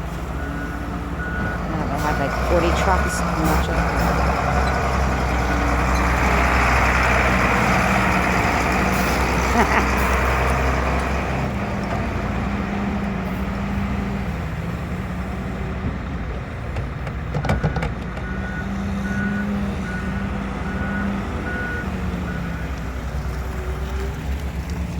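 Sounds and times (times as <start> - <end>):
heavy diesel engines running: 0.0 - 24.9
reversing alarm beeping: 0.4 - 7.0, 17.5 - 22.7.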